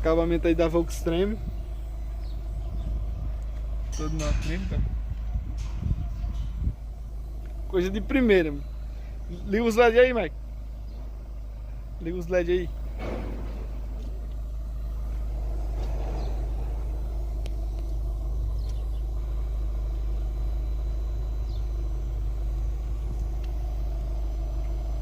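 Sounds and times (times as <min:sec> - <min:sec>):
vehicle engine rumble: 0:00.0 - 0:25.0
faint clicks: 0:18.6 - 0:19.0, 0:23.1 - 0:23.6.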